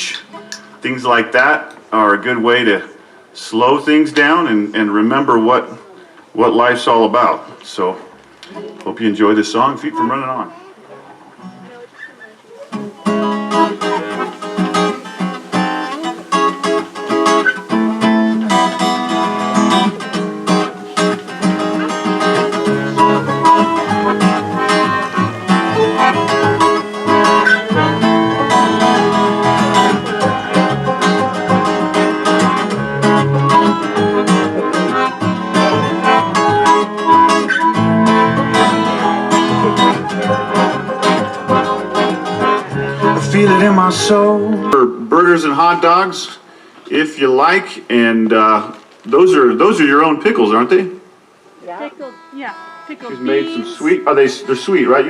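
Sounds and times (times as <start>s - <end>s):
acoustic band playing: 0.0s - 0.8s, 12.6s - 45.0s, 51.6s - 55.0s
acoustic guitar: 0.0s - 51.0s, 51.6s - 55.0s.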